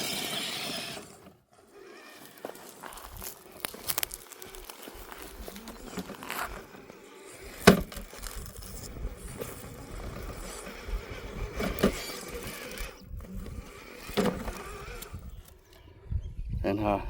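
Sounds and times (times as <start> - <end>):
toy truck clattering on stones: 0.0 - 15.2
electric motor whine: 0.0 - 16.6.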